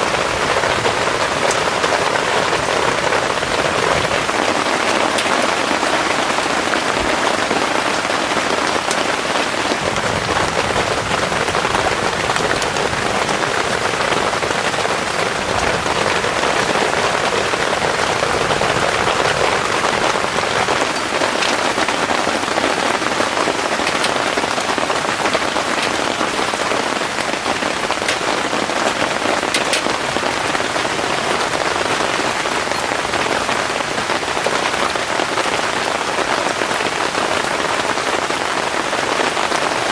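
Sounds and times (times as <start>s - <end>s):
heavy rain falling: 0.0s - 39.9s
raindrop clicks: 0.0s - 39.9s.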